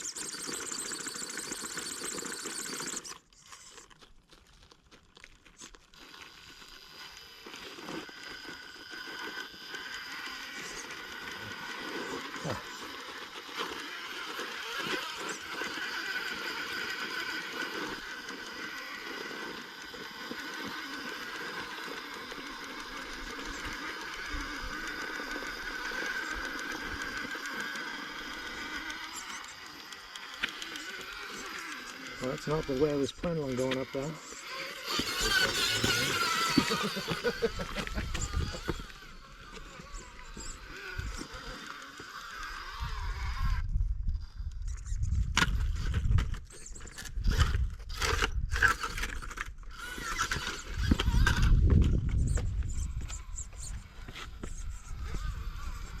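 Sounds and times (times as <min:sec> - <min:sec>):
electric motor whining: 0:00.0 - 0:04.8, 0:05.4 - 0:56.0
toy crawler scraping over rock: 0:00.0 - 0:56.0
wind on microphone: 0:50.6 - 0:56.0.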